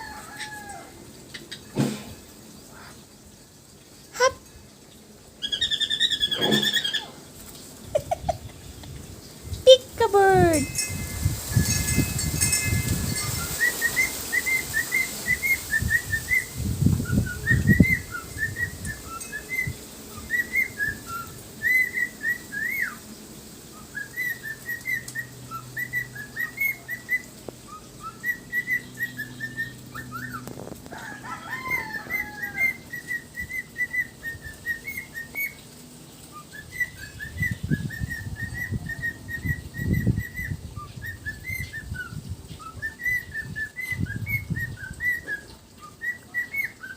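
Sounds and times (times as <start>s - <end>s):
parrot chirping and whistling: 5.4s - 7.2s, 12.7s - 23.0s, 23.8s - 30.5s, 31.4s - 35.6s, 36.3s - 46.9s.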